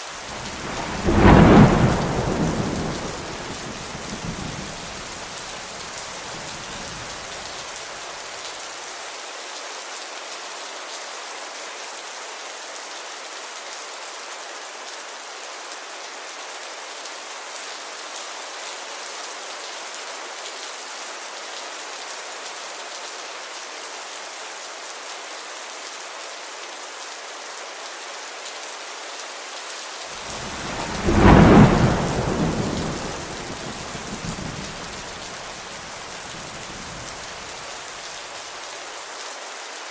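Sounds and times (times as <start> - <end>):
steady rainfall: 0.0 - 39.9
thunder rumbling: 0.2 - 7.3, 30.2 - 37.6.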